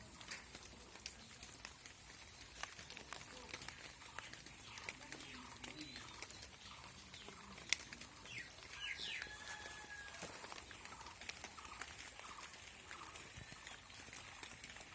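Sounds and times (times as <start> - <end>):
light rain dripping: 0.0 - 14.9
birds chirping: 0.1 - 14.9.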